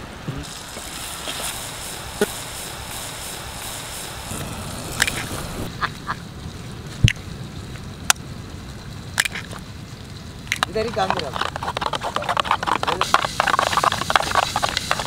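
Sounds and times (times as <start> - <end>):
vegetables sizzling in oil: 0.4 - 6.3.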